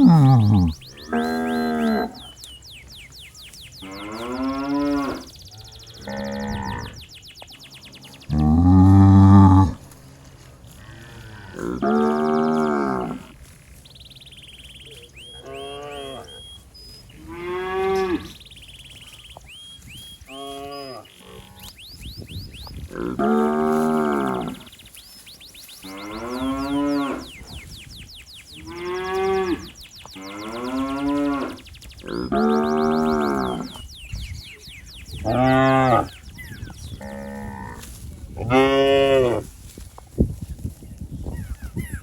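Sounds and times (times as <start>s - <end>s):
calf mooing: 0.0s - 2.2s, 8.3s - 9.8s.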